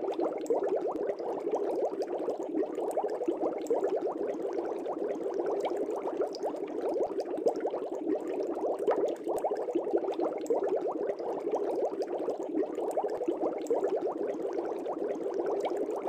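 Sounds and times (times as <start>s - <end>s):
aquarium air bubbles bubbling: 0.0s - 16.0s.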